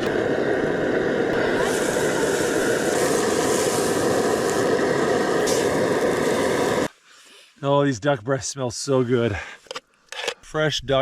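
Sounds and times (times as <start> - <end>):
meat sizzling in a pan: 0.0 - 6.9.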